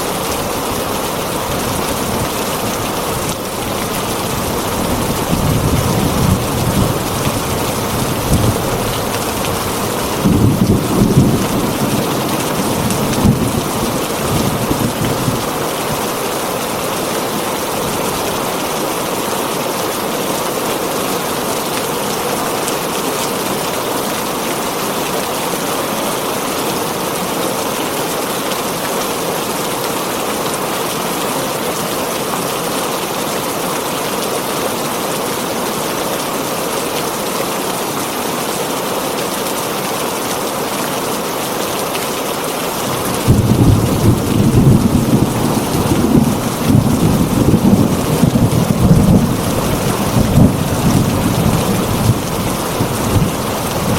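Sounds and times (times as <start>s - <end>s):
heavy rain on a tin roof: 0.0s - 53.9s
thunder rumbling: 4.1s - 15.5s, 42.8s - 53.9s.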